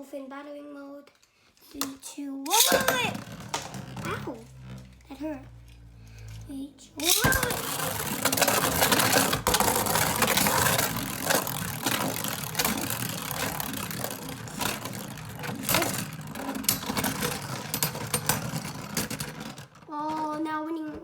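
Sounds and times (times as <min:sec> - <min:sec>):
spinning tops clashing: 0:02.5 - 0:04.8, 0:07.0 - 0:19.8
spinning tops whirring: 0:02.5 - 0:20.4.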